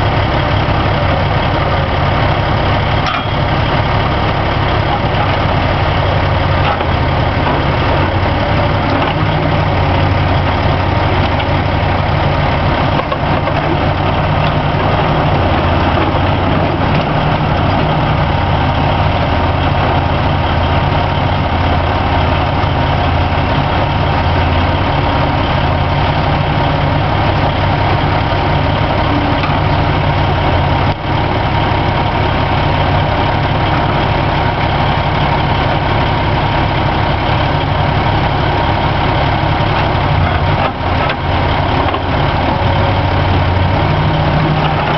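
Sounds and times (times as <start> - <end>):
diesel engine idling: 0.0 - 44.9.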